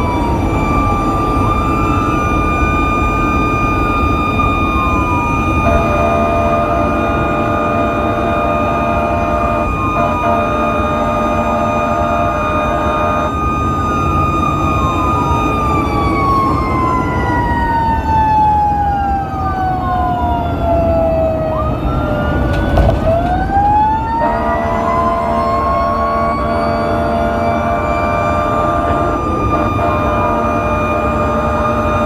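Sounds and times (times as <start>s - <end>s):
engine and road noise: 0.0s - 32.0s
multi-note horn tone: 5.6s - 13.6s, 24.2s - 32.0s.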